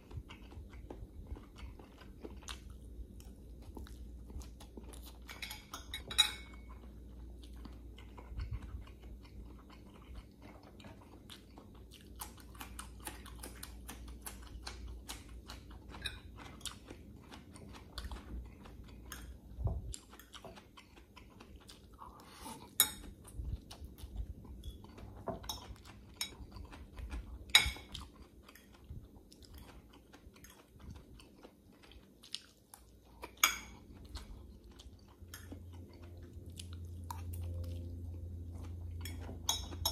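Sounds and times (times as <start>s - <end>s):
chewing noodles: 0.0s - 39.9s
fork clinking on glass bowl: 5.3s - 6.6s, 39.0s - 39.9s.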